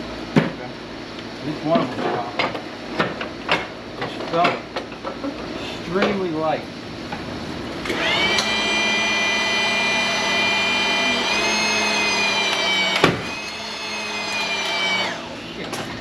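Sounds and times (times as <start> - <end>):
hydraulic pump whine: 7.8 - 16.0.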